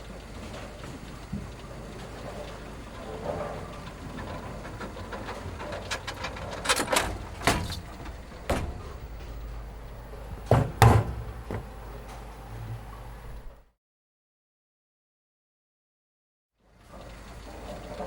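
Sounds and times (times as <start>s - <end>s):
steady low hum: 0.0s - 13.7s
sharp knocks or bangs: 10.4s - 11.7s.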